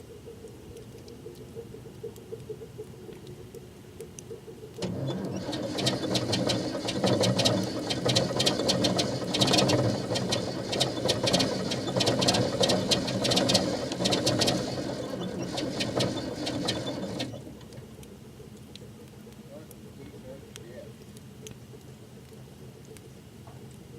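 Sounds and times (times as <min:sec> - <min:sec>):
diesel engine running rough: 0:04.8 - 0:17.4.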